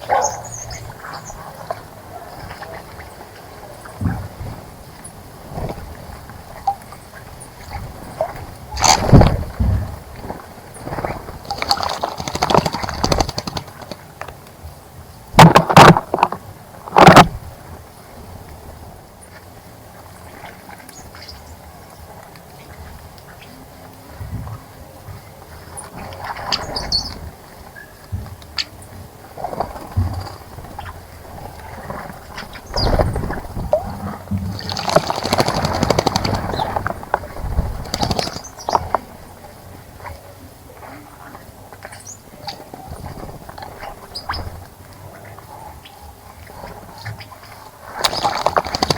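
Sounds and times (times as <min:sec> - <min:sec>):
bird fluttering splashes: 0:00.2 - 0:14.4, 0:25.6 - 0:40.1, 0:41.2 - 0:45.5, 0:46.4 - 0:48.9.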